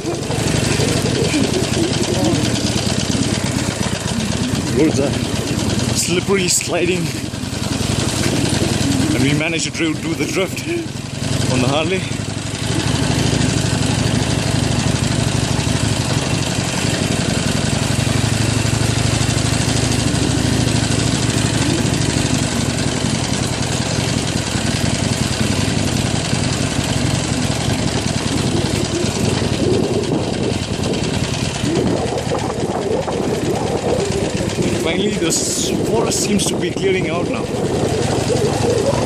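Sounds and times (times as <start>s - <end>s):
motorcycle engine running: 0.0s - 39.0s
wind rush: 28.4s - 39.0s.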